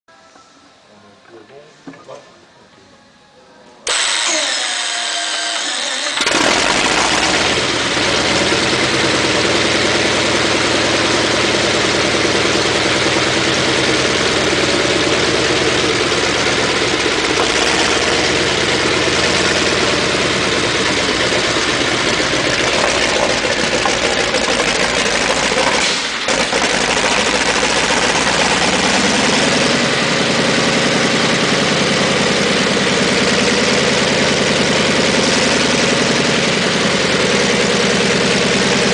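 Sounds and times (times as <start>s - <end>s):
starter motor cranking: 3.9s - 8.4s, 15.3s - 19.9s, 20.6s - 29.7s
tank engine running: 6.2s - 38.9s.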